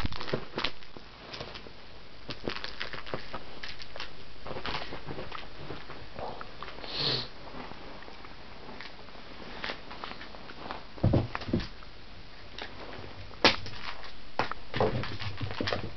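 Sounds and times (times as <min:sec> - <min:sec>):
kitten sniffing: 0:06.8 - 0:07.4.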